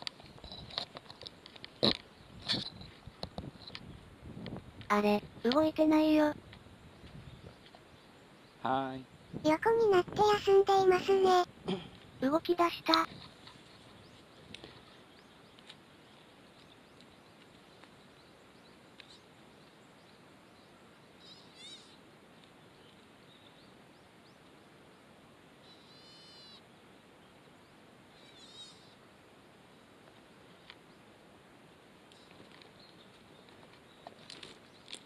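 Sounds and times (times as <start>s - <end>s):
faint outdoor hiss: 0.0s - 35.0s
bird short high calls: 21.2s - 22.0s, 25.6s - 26.6s, 28.1s - 29.0s.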